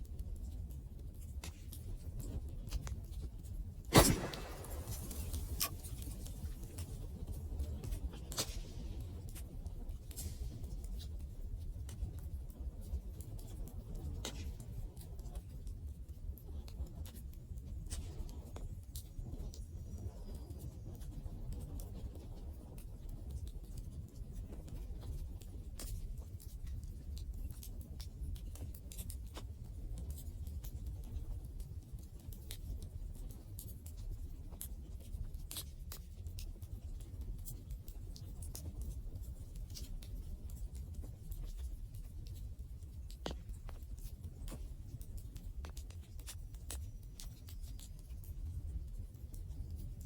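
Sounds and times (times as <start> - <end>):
rumble of flames: 3.9 - 6.9
burning wood crackles and pops: 3.9 - 7.0.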